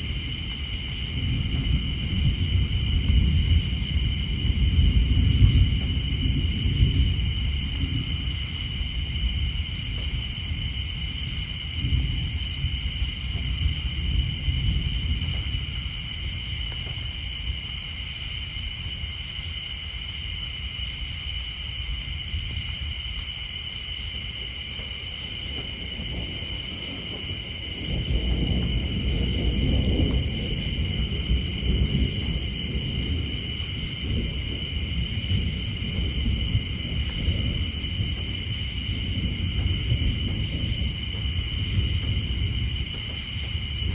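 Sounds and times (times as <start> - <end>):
distant thunder rumbling: 0.0 - 23.1, 23.8 - 43.9
insects and frogs trilling: 0.0 - 43.9.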